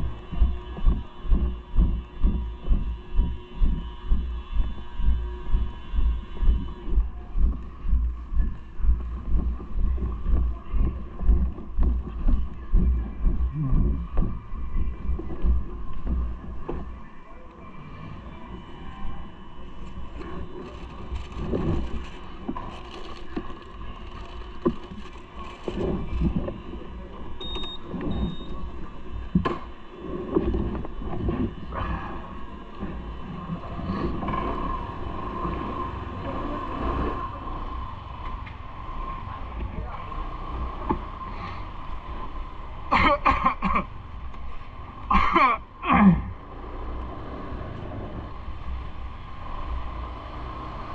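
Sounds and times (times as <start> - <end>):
vehicle rumble on city streets: 0.0 - 50.9
wind and road noise: 0.0 - 50.9
short high beep: 27.4 - 28.6
person clearing throat: 42.9 - 43.9, 45.1 - 46.4.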